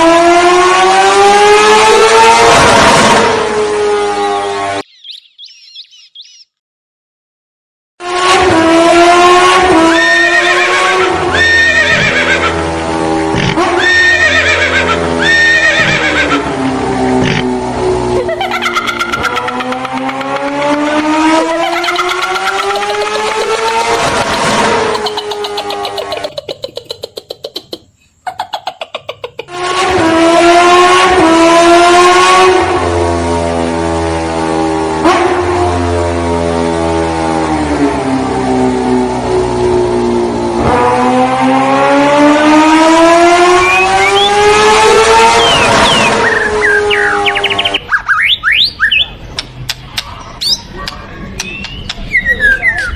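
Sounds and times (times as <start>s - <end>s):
horse-like whinnying: 10.0s - 12.6s, 13.4s - 16.4s.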